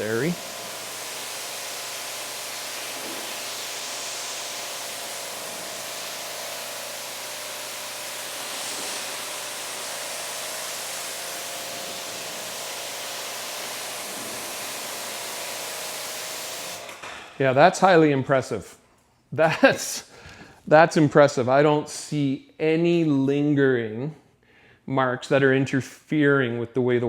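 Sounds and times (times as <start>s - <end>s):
water spray hissing: 0.0s - 16.8s.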